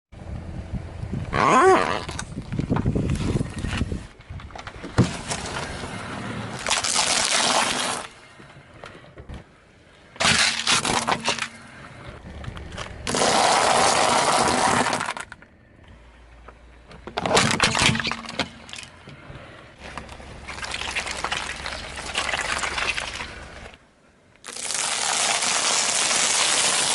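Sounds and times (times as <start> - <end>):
objects crushed under tyres: 4.5 - 8.4, 10.2 - 15.5, 16.9 - 19.2.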